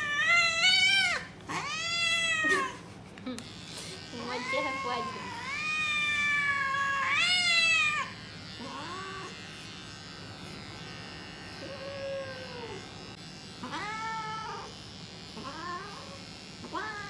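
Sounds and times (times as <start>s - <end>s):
cat meowing: 0.0s - 2.8s, 4.2s - 9.3s, 13.6s - 14.7s, 15.4s - 16.1s, 16.7s - 17.0s
electric pet clippers buzzing: 0.0s - 17.0s.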